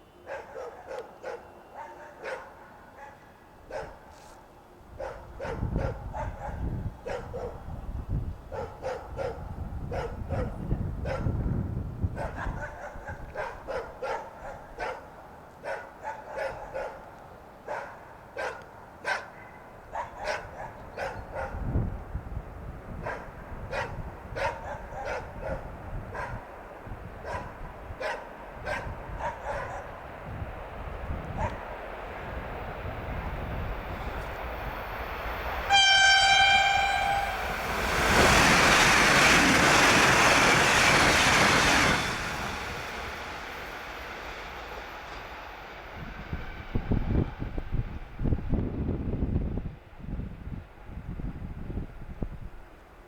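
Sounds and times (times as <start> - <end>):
dog barking: 0.2 - 4.2, 5.0 - 7.6, 8.5 - 11.4, 12.2 - 17.1, 17.7 - 21.6, 23.0 - 26.4, 27.2 - 30.0, 31.4 - 31.6
train rushing past: 21.6 - 51.9
train horn blast: 35.6 - 40.6.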